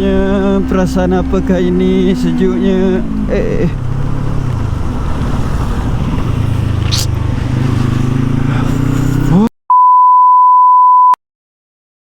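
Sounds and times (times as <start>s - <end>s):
motorcycle engine running: 0.0s - 9.5s
steady high beep tone: 9.7s - 11.2s.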